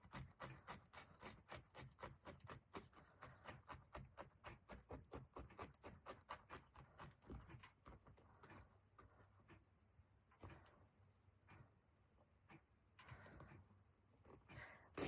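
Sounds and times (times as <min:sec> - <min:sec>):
felting needle poking foam: 0:00.0 - 0:08.6.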